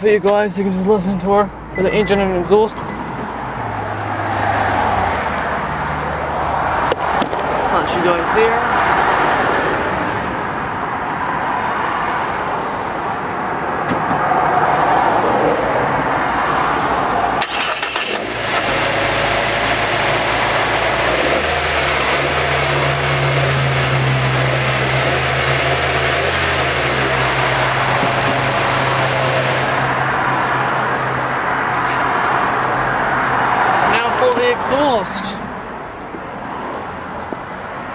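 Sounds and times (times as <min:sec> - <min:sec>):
car engine starting and idling: 0:00.0 - 0:09.8, 0:16.8 - 0:37.3
traffic noise: 0:00.0 - 0:37.9.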